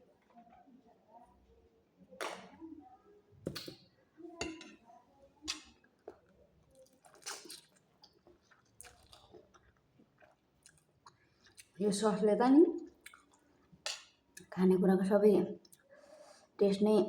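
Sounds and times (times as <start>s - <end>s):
person chewing and smacking: 6.0s - 11.8s, 12.9s - 14.5s.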